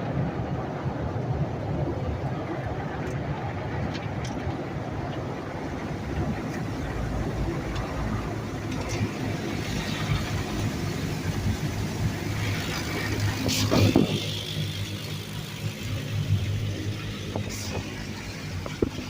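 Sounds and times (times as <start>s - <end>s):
car wash machinery rumble: 4.8s - 19.0s.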